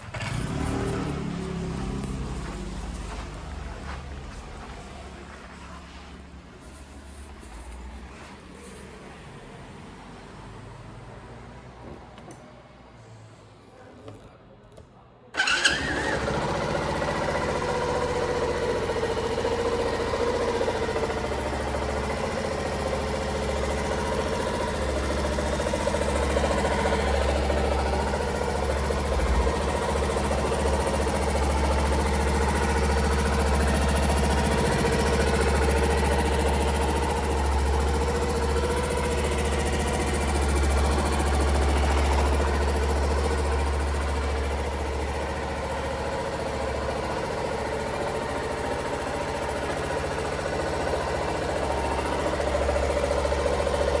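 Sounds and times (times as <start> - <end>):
small motorcycle engine starting and idling: 0.0 - 9.2, 15.4 - 54.0.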